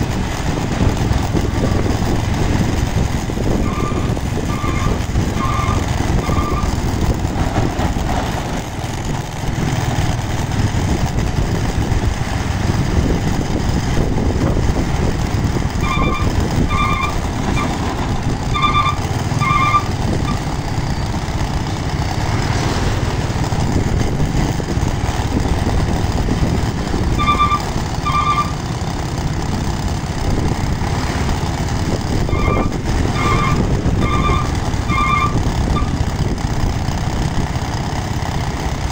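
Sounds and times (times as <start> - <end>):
diesel truck engine rumbling: 0.0 - 38.9
reversing beeper pips: 15.8 - 17.2, 18.4 - 21.2, 27.2 - 28.6.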